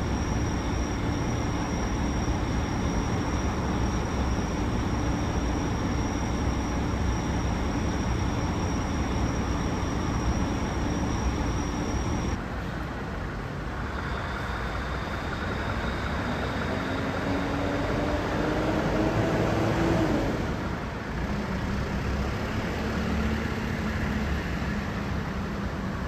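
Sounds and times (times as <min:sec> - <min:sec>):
thin high whine: 0:00.0 - 0:12.4
vehicle engine hum and rushing: 0:00.0 - 0:26.0.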